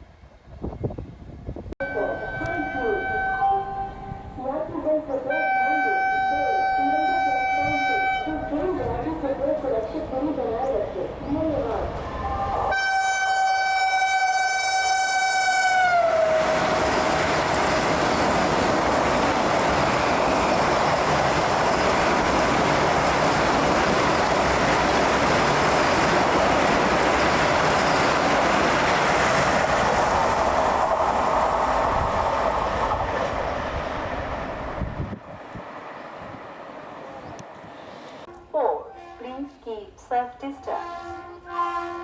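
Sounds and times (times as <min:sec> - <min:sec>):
train rushing past: 0:00.0 - 0:38.3
train horn blowing: 0:01.8 - 0:04.3, 0:05.3 - 0:08.5, 0:12.7 - 0:17.1, 0:38.3 - 0:39.6, 0:40.6 - 0:42.0
rail clatter: 0:16.3 - 0:38.3.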